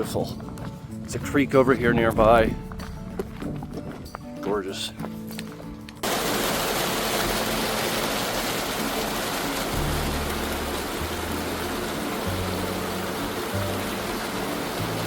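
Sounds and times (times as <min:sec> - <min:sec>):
low background music: 0:00.0 - 0:15.0
creek water rushing: 0:06.0 - 0:15.0.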